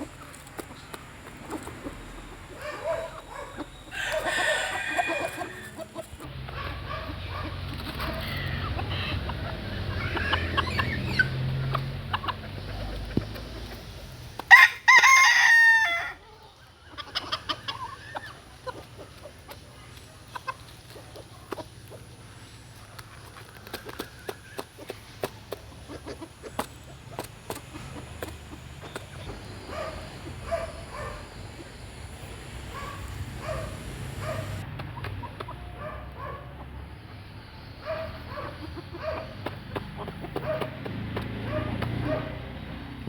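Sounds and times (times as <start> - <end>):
chickens clucking: 0.0 - 43.0
rooster crowing loudly: 3.9 - 5.8, 14.5 - 16.2.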